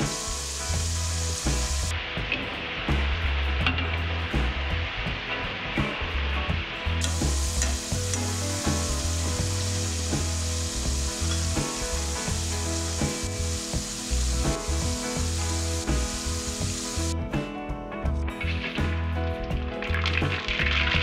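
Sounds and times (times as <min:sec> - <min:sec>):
potatoes sizzling in hot oil: 0:00.0 - 0:01.9, 0:07.0 - 0:17.1
background music with low bass: 0:00.0 - 0:21.0.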